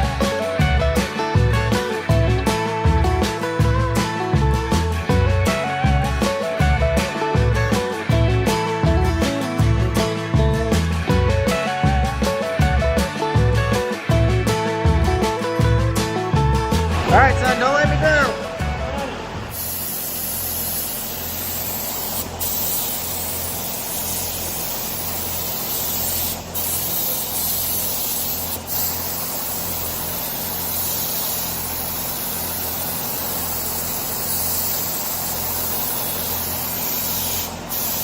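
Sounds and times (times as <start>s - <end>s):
paint spray gun hissing: 16.7s - 38.0s.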